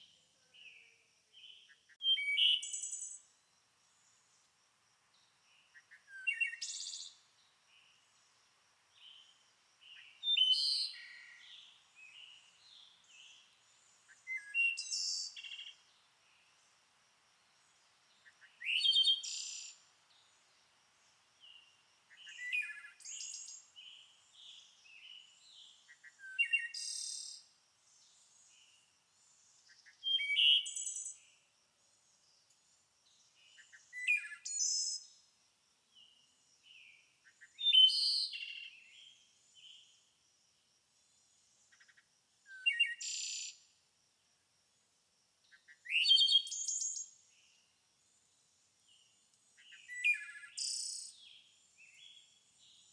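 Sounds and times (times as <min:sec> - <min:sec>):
songbird chirping and trilling: 0:01.4 - 0:03.3, 0:05.6 - 0:08.1, 0:09.0 - 0:16.0, 0:18.1 - 0:20.3, 0:21.4 - 0:27.4, 0:29.5 - 0:31.3, 0:33.4 - 0:35.2, 0:36.0 - 0:40.0, 0:49.6 - 0:52.9.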